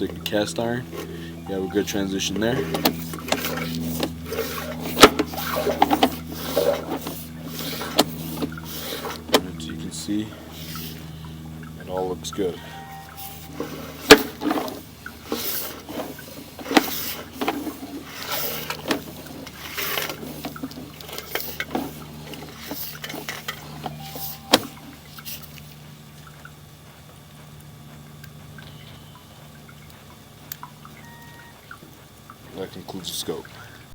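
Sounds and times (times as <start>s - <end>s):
steady hum: 0.0s - 33.9s.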